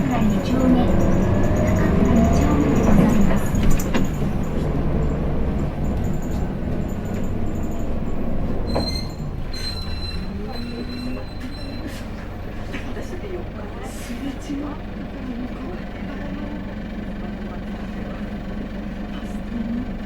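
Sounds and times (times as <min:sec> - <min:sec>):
rattles and clicks: 0:00.0 - 0:09.4
bus engine running: 0:00.0 - 0:20.0.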